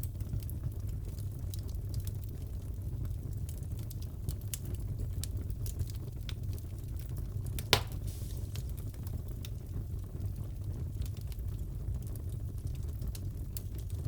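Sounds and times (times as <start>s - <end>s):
wood fire crackling: 0.0s - 14.0s
sharp fire pop: 7.6s - 8.8s.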